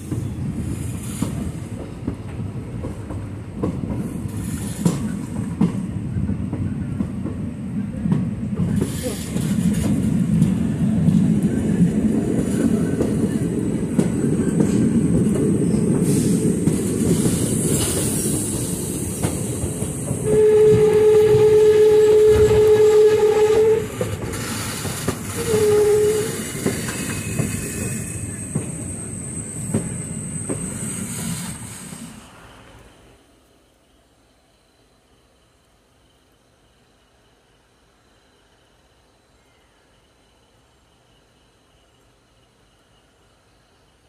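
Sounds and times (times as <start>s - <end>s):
train wheels rumbling on rails: 0.0s - 33.2s
locomotive horn blasts: 20.2s - 24.0s, 25.4s - 26.4s.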